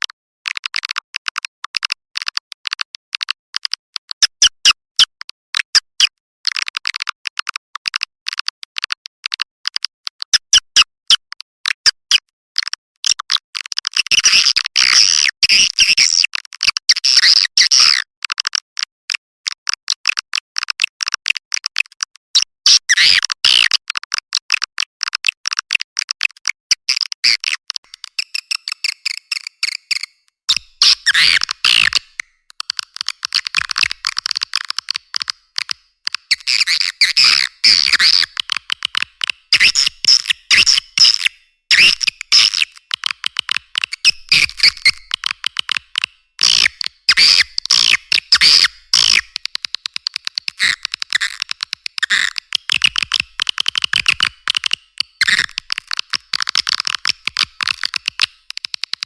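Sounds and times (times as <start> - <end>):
high-pitched bird chirps: 27.3 - 32.2, 36.2 - 38.4, 39.5 - 42.8, 43.9 - 45.2, 46.4 - 49.4, 52.0 - 52.9, 55.1 - 55.6.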